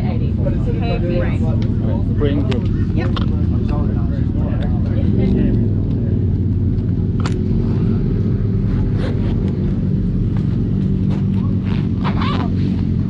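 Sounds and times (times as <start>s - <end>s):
low engine hum: 0.0s - 13.0s
faint voices: 9.8s - 13.0s.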